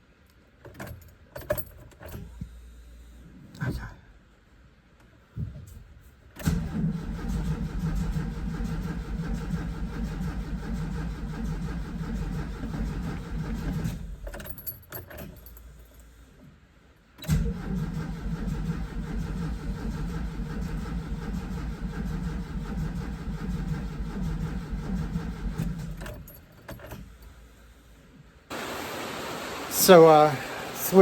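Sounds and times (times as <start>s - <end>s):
van engine running: 6.4s - 14.3s, 17.4s - 26.4s.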